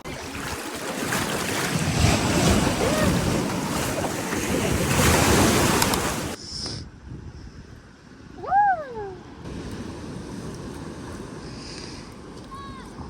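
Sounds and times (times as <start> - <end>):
ocean surf washing in: 0.0 - 6.4, 9.4 - 12.9.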